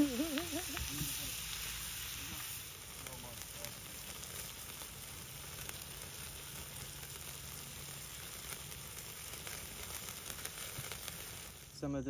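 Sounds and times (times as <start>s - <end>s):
food sizzling on a grill: 0.0s - 12.0s
wood fire crackling: 0.0s - 12.0s.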